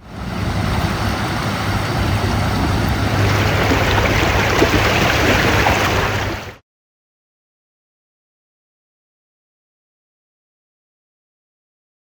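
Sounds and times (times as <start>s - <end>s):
vehicle engine hum: 0.0s - 6.6s
water spray rushing: 0.0s - 6.6s.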